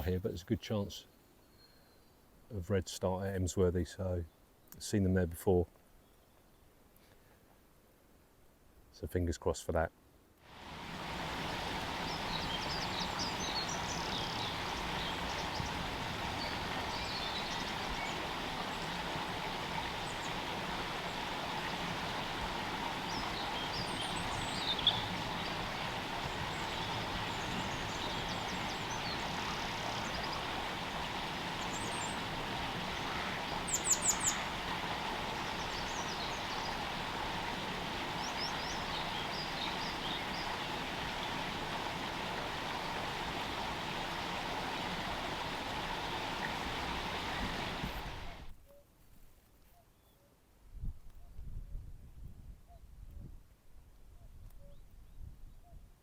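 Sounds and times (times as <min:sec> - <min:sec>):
steady background hiss: 0:00.0 - 0:49.4
small birds chirping: 0:11.2 - 0:48.8.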